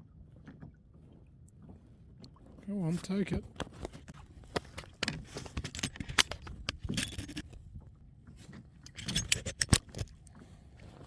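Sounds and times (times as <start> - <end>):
fishing gear clicking and scraping: 3.6 - 7.8, 8.4 - 10.4.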